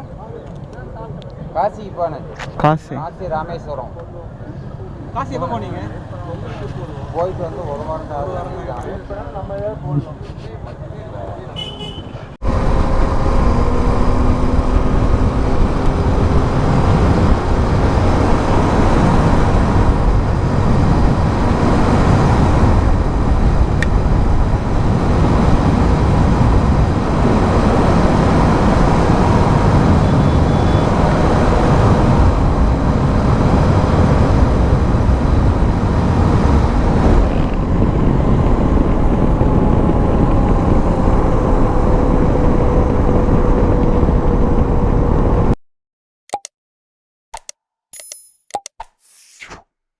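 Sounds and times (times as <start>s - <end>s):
motorcycle engine: 11.6s - 45.6s
wind buffeting microphone: 11.6s - 45.6s.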